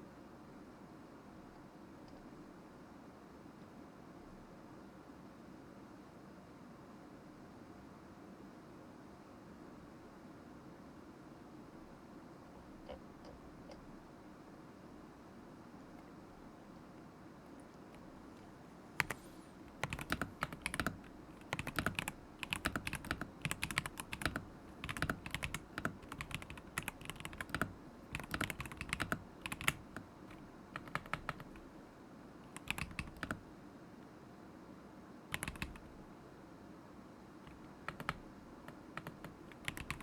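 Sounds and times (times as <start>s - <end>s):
mechanical keyboard typing: 19.0s - 31.6s, 32.5s - 33.4s, 35.3s - 35.9s, 37.5s - 40.0s.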